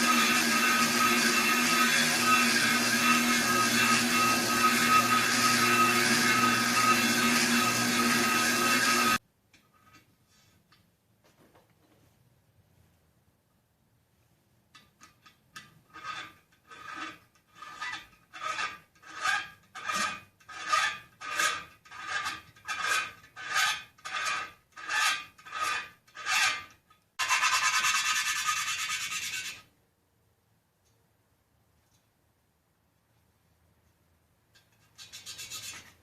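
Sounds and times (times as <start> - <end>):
hand filing strokes on metal: 15.9 - 29.7, 34.9 - 36.0.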